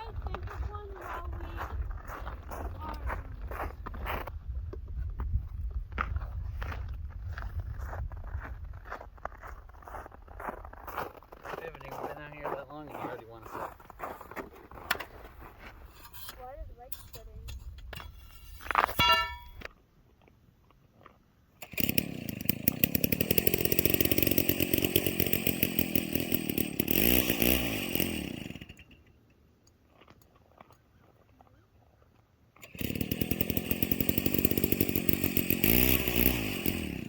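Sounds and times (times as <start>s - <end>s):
ice auger engine drilling: 21.6s - 29.1s, 32.6s - 37.0s.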